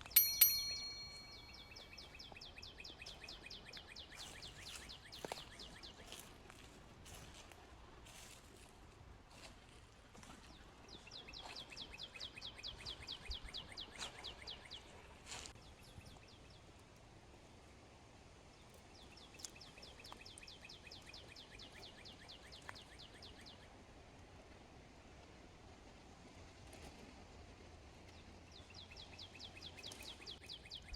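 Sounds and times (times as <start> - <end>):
songbird trilling: 0.0 - 2.2
faint outdoor background noise: 0.0 - 30.9.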